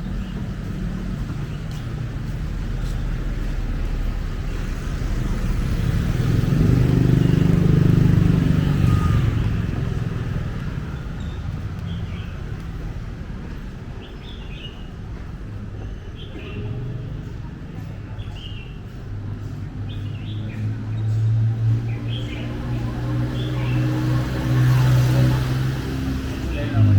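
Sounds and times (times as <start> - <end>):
vehicle engine rumble passing: 0.0 - 13.9, 16.4 - 26.9.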